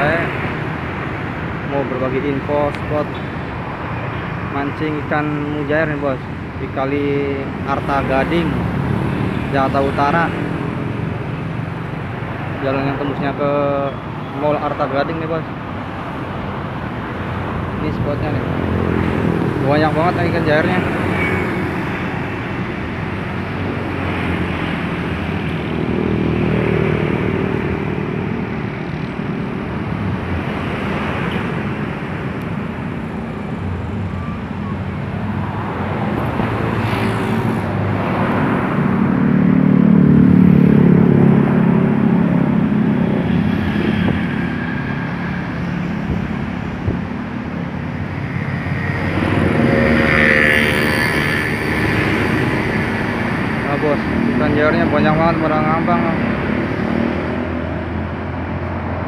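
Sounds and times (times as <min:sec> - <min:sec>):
vehicle engines and tyre noise: 0:00.0 - 0:59.0
loud engine passing: 0:33.6 - 0:59.0.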